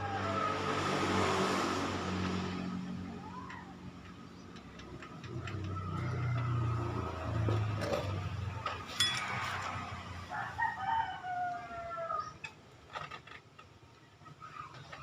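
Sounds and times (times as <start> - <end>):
rooster crowing: 10.2 - 12.4.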